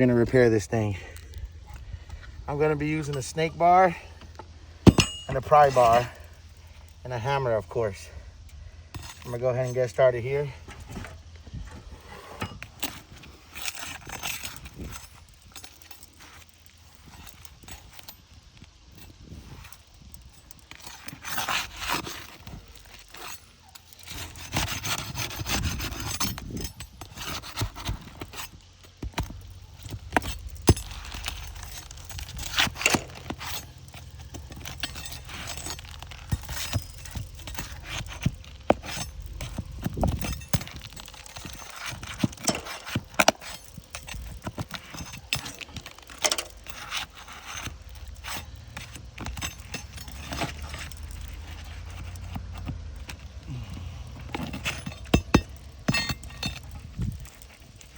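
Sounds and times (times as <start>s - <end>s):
pry bar scraping under shingles: 0.0s - 57.9s.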